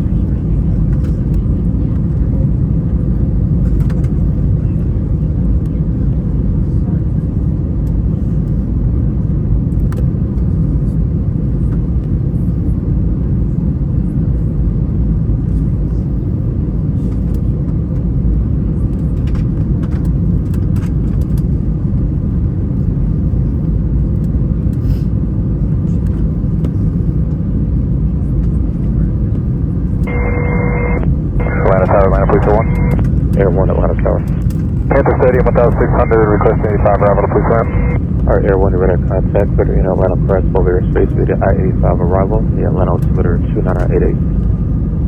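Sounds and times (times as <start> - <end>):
airplane cabin engine rumble: 0.0 - 45.0
radio transmission: 30.0 - 44.2.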